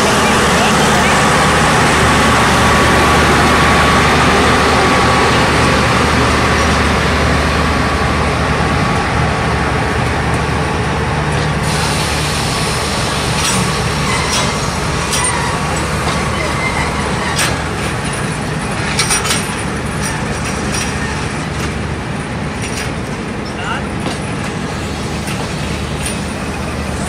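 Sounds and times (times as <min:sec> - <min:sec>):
train coaches rumbling past: 0:00.0 - 0:27.0
wheels clicking over rail joints: 0:13.2 - 0:27.0.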